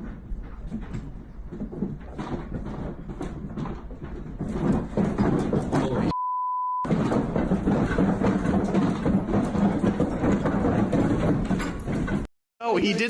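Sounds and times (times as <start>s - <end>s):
censor bleep: 6.1s - 6.9s.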